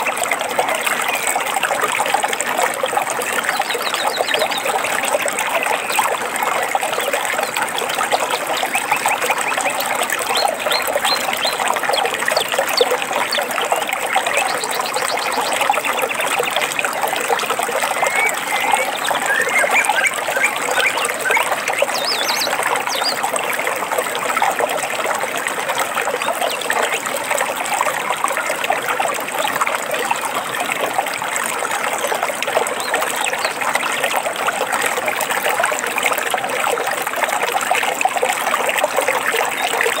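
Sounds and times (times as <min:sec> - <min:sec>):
stream water babbling: 0:00.0 - 0:40.0
bird chirps: 0:17.9 - 0:23.2.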